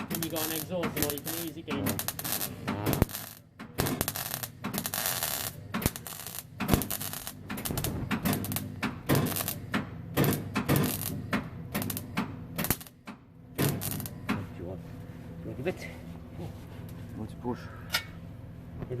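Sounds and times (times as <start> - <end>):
welding arc crackling: 0.0 - 13.0, 13.6 - 14.2.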